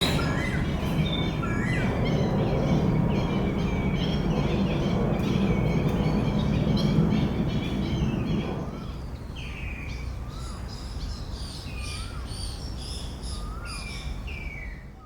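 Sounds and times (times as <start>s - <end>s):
steady low rumble: 0.0s - 9.5s
birds chirping: 0.0s - 11.1s.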